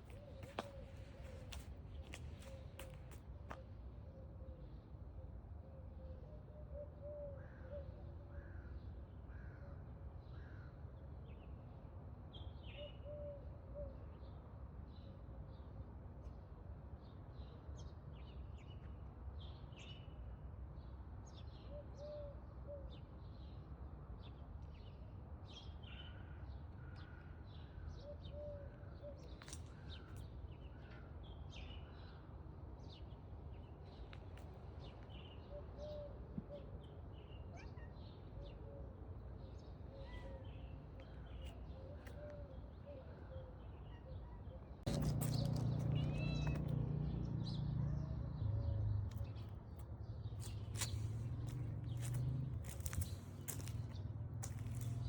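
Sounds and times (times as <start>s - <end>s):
birds chirping: 44.9s - 55.0s.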